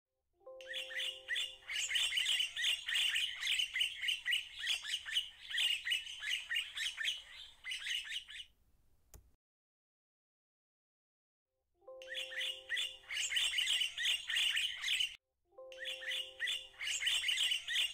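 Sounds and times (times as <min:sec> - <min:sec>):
birds chirping: 0:00.6 - 0:08.6, 0:12.0 - 0:17.9.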